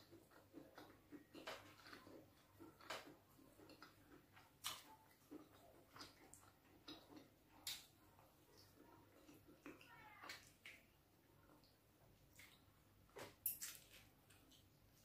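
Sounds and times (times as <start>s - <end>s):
wet chewing mouth clicks: 0.0s - 10.8s.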